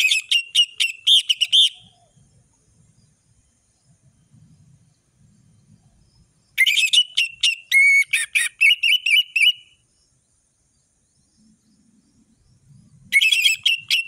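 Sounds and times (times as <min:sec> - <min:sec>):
thrush singing whistles: 0:00.0 - 0:14.0.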